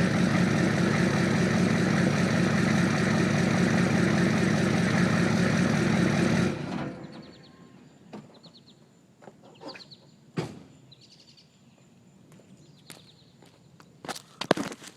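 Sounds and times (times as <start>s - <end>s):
diesel engine idling: 0.0s - 7.4s
birds chirping: 7.0s - 14.5s.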